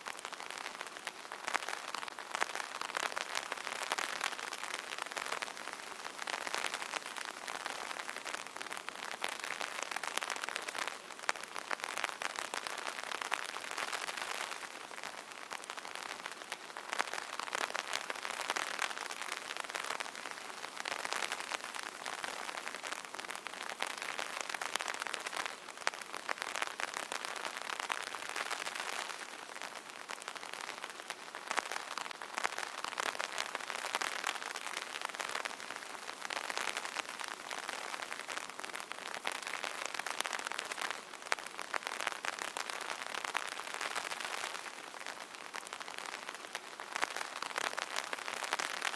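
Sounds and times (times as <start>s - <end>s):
rain pattering on umbrella: 0.0s - 48.9s.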